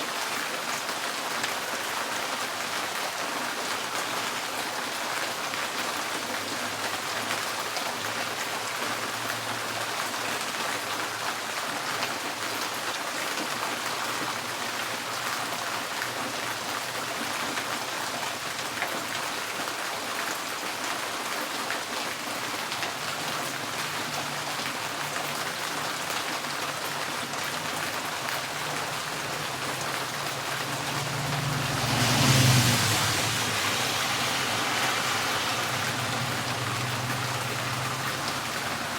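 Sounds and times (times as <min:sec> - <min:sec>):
rain drumming on a tin roof: 0:00.0 - 0:38.9
vehicle passing: 0:26.8 - 0:38.9.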